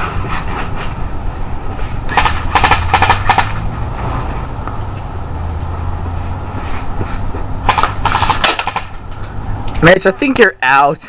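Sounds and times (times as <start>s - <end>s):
airsoft gun bursts: 2.1s - 3.5s, 7.7s - 8.9s.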